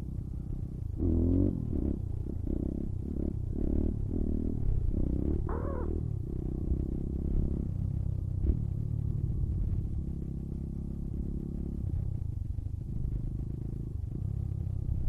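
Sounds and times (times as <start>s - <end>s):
small motorbike engine running: 0.0s - 15.0s.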